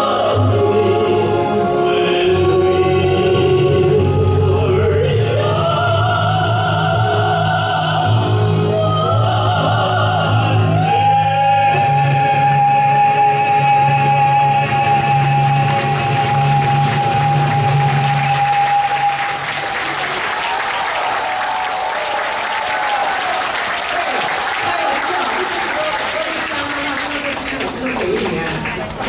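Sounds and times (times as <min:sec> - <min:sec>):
male and female vocal duet: 0:00.0 - 0:19.4
audience applause: 0:14.0 - 0:29.0.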